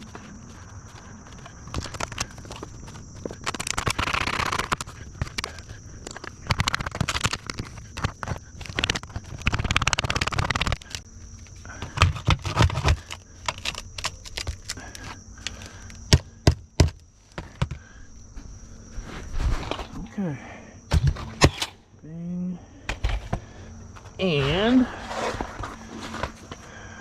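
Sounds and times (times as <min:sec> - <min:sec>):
dense rattle of rapid clicks: 0:03.4 - 0:11.0
roofing materials scraping: 0:24.0 - 0:26.7.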